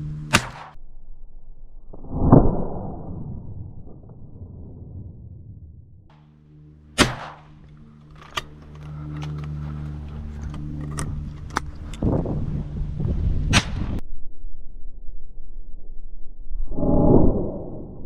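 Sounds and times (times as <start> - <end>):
low hum: 0.0 - 18.0
distant gunshot cracks: 0.3 - 0.8, 7.0 - 7.6
shotgun shots: 0.3 - 0.8, 7.0 - 8.6.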